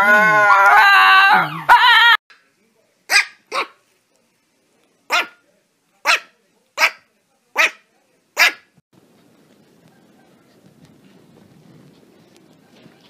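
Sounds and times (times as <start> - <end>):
puppy barking: 3.1 - 3.8, 5.1 - 5.4, 6.0 - 8.7.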